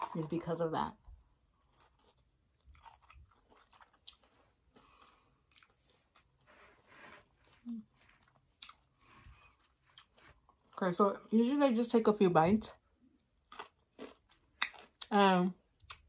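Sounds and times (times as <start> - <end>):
chewing noodles: 1.5 - 6.4, 7.2 - 10.8.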